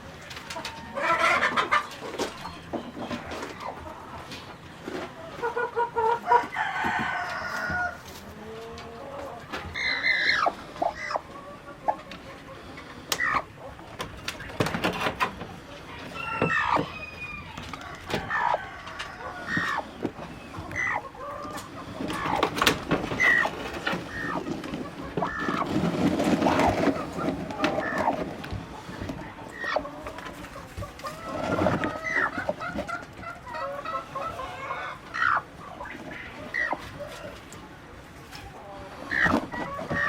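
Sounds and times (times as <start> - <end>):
chickens clucking: 0.0 - 40.0
rooster crowing: 6.2 - 8.0, 15.9 - 19.8.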